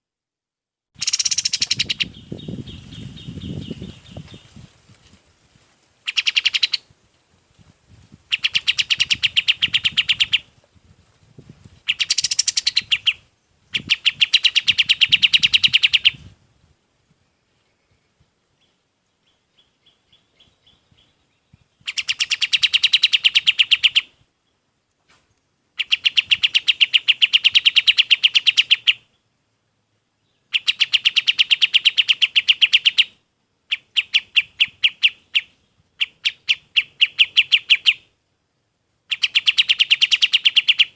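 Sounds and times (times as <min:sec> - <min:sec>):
songbird calling in rattling bursts: 0:01.0 - 0:04.7, 0:06.0 - 0:06.9, 0:08.3 - 0:10.5, 0:11.8 - 0:16.3, 0:21.8 - 0:24.2, 0:25.8 - 0:29.1, 0:30.4 - 0:38.2, 0:39.0 - 0:40.9.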